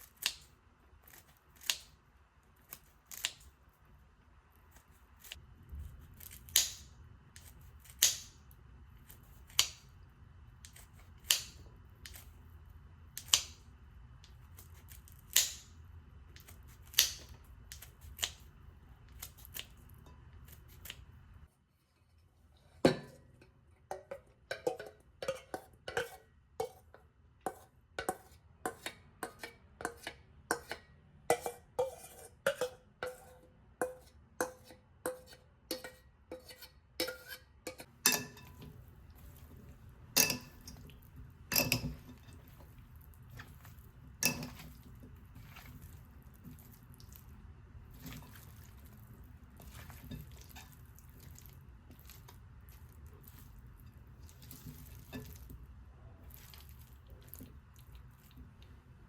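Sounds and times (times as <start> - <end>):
utensil clinking against bowl: 23.9 - 38.7, 40.2 - 42.4.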